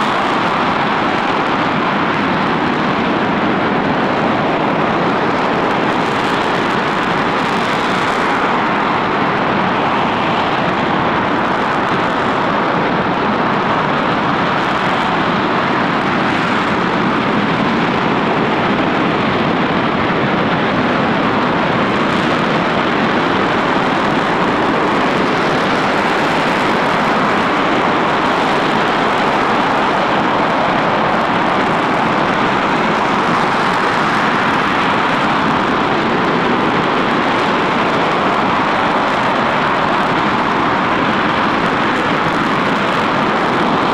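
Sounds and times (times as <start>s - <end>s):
rocket engine roaring: 0.0s - 43.9s.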